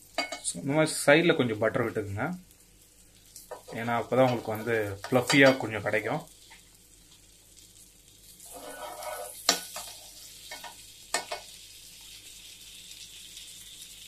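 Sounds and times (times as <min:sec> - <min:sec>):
egg batter sizzling in pan: 0:00.0 - 0:14.0.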